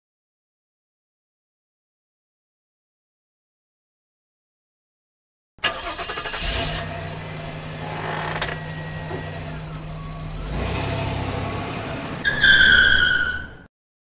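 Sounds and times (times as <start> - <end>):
car engine idling and revving: 5.6 - 13.4
tyre squeal: 11.6 - 13.7.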